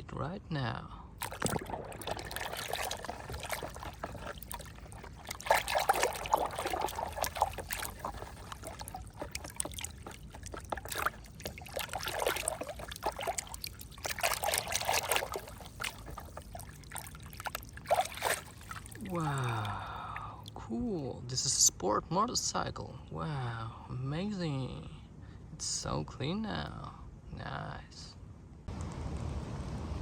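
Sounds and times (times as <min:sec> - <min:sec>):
water trickling and splashing: 0:01.2 - 0:20.6.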